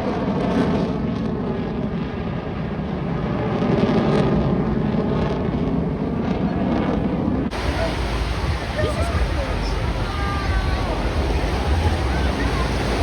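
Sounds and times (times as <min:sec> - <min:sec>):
jet engine roar: 0:00.0 - 0:13.0.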